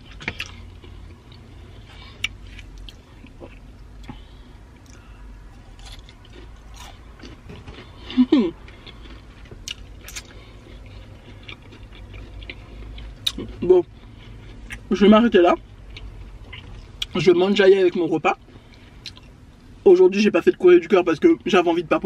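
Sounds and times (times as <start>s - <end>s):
chewing and lip smacks: 4.8s - 14.9s, 15.9s - 17.2s, 18.5s - 19.4s.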